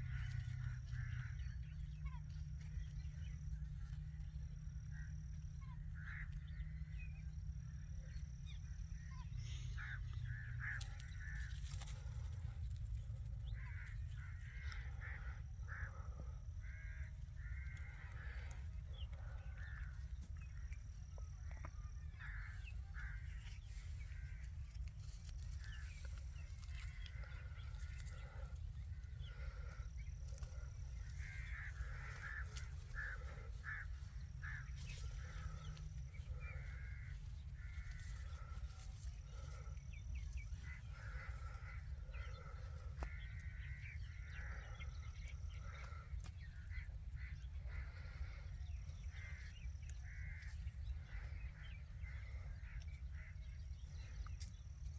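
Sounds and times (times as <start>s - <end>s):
low rumble: 0.0s - 54.9s.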